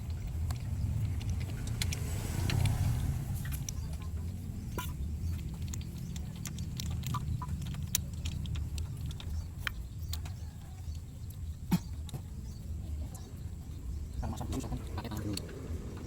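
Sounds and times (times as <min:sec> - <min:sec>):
light clicks and metallic taps: 0:00.0 - 0:12.4
steady low rumble: 0:00.0 - 0:16.0.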